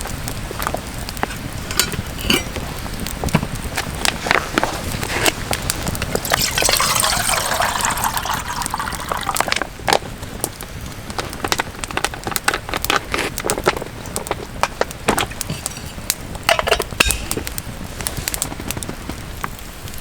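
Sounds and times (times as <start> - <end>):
campfire crackling and popping: 0.0 - 20.0
liquid pouring: 6.2 - 9.8.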